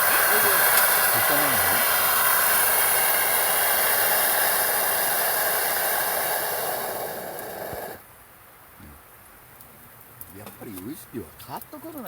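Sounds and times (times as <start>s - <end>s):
loud steady hiss: 0.0s - 9.2s.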